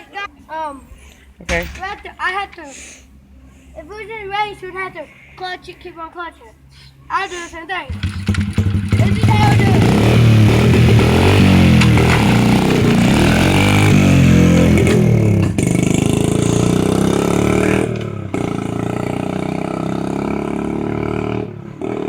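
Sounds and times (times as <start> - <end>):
dirt bike engine revving: 7.9 - 22.0.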